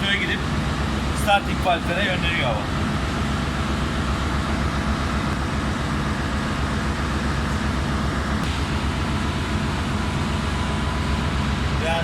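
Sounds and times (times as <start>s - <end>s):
diesel machinery drone: 0.0s - 12.0s.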